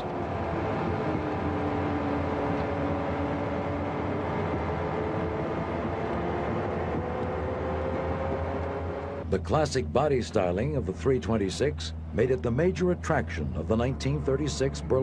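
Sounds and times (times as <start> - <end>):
car engine running: 0.0 - 15.0
road and wind noise: 0.0 - 15.0.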